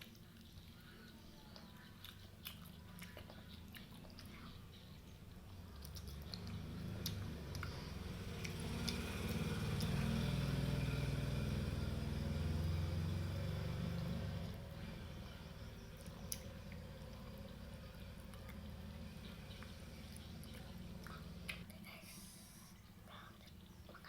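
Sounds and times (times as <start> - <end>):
person chewing crunchy food: 0.0 - 9.0.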